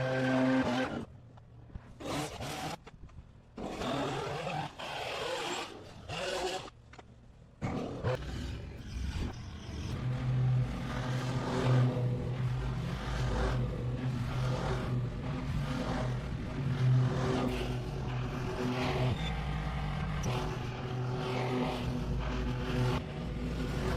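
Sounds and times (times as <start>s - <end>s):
motor humming: 7.6s - 23.9s.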